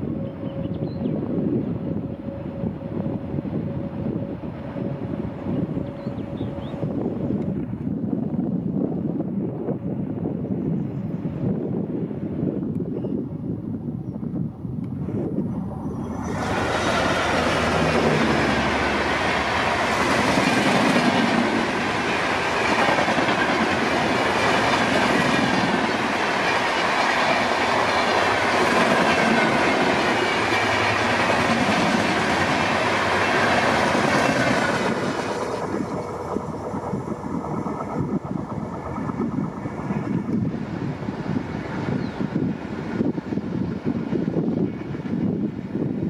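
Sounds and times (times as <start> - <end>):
diesel locomotive passing: 0.0 - 10.4, 11.2 - 46.0
train wheels rushing on rails: 14.9 - 46.0.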